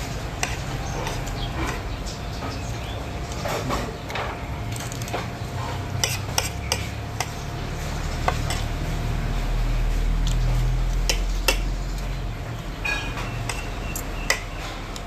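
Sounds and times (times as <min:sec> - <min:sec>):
steady low hum: 0:00.0 - 0:15.0
cutlery clinking on plate: 0:06.0 - 0:07.4.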